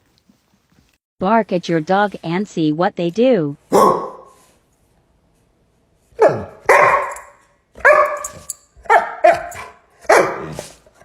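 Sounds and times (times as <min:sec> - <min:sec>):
dog barking: 0:03.7 - 0:04.4, 0:06.2 - 0:10.7.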